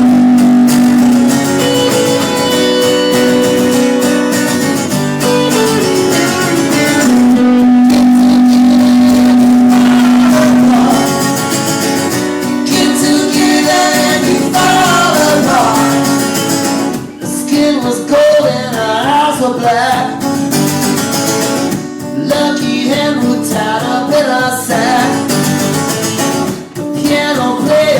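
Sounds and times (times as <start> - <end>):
live band playing: 0.0 - 17.2
strummed guitars: 0.0 - 27.9
person singing: 5.2 - 11.8, 12.5 - 16.5.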